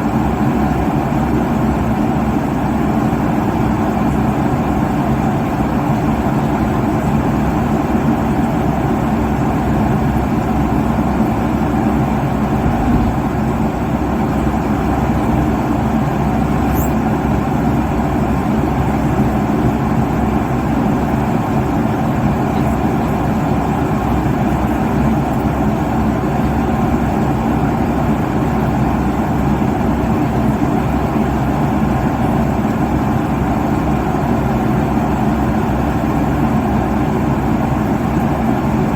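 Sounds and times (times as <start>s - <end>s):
airliner cabin engine rumble: 0.0s - 38.9s
faint steady hum of tones: 0.0s - 38.9s.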